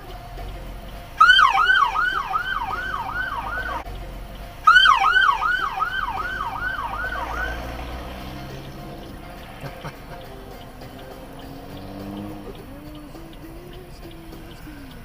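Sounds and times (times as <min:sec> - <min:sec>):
emergency siren yelping: 0:01.1 - 0:03.9, 0:04.6 - 0:10.8.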